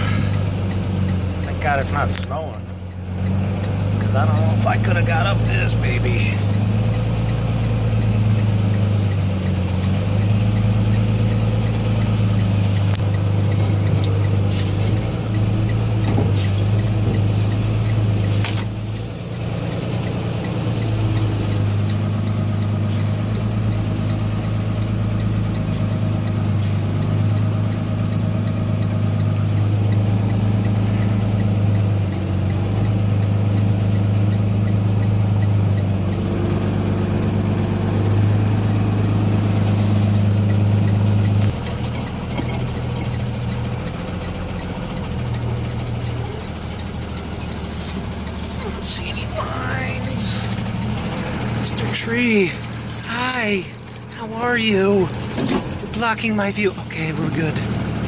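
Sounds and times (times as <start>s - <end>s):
diesel engine running: 0.0s - 58.0s
sharp ticks: 0.0s - 58.0s.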